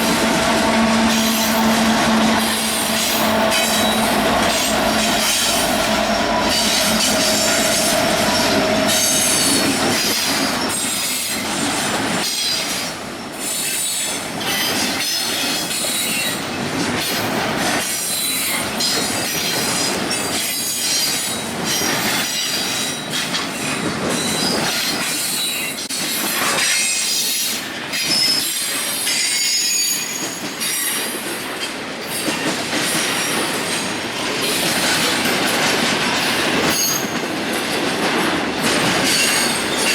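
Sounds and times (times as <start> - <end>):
wheel flanges squealing: 0.0 - 10.8
train wheels knocking on rail joints: 0.0 - 13.0, 13.6 - 39.9.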